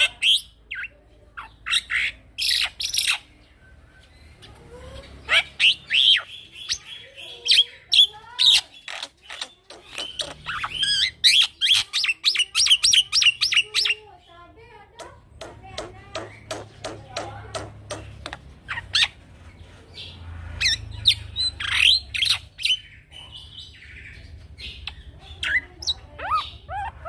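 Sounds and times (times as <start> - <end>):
myna whistling and chattering: 1.6 - 14.0, 20.6 - 27.0.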